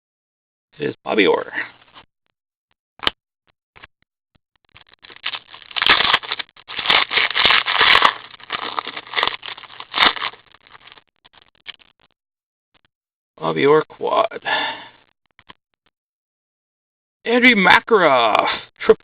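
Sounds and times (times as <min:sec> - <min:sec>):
wrappers crinkling and rustling: 0:04.7 - 0:12.0.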